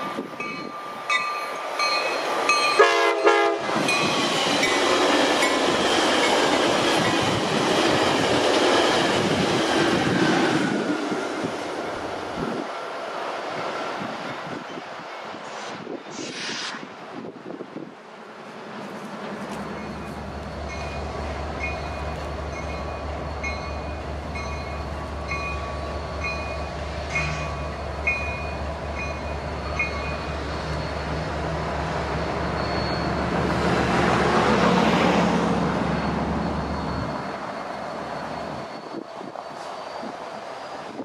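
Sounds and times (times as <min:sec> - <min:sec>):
train bell ringing: 0:00.0 - 0:07.4, 0:19.5 - 0:31.4, 0:32.0 - 0:33.6, 0:35.5 - 0:40.4
diesel train rumbling: 0:00.0 - 0:41.0.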